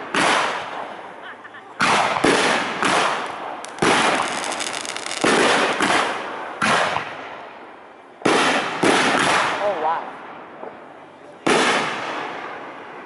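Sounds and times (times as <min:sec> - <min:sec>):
firework booms: 0:00.0 - 0:01.0, 0:01.8 - 0:07.4, 0:08.2 - 0:09.6, 0:11.4 - 0:13.0
firework crackling: 0:00.0 - 0:07.2.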